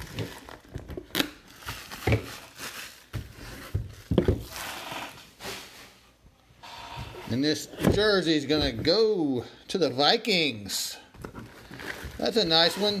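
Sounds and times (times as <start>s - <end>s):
plastic wrap crinkling and tearing: 0.0s - 6.0s, 11.2s - 13.0s.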